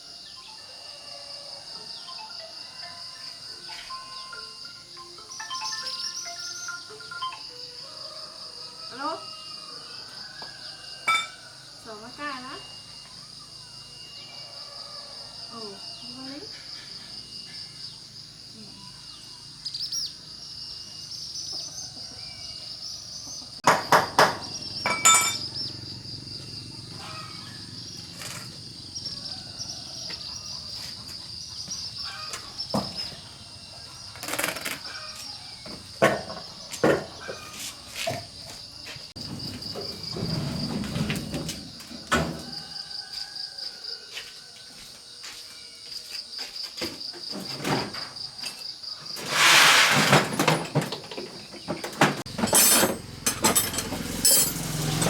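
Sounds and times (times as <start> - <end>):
insect chorus: 0.0 - 55.0
sharp knocks and clatters: 23.6 - 25.5, 35.7 - 37.5.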